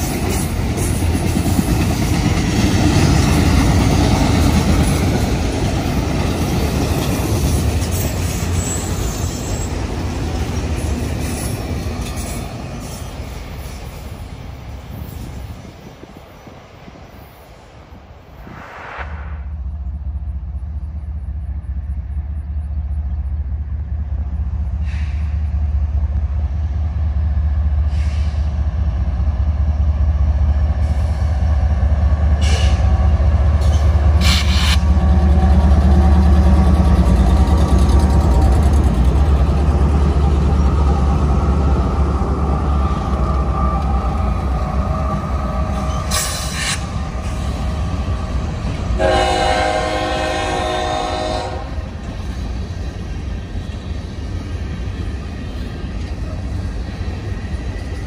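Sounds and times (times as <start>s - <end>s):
diesel locomotive rumbling past: 0.0s - 58.0s
train horn: 49.0s - 51.8s.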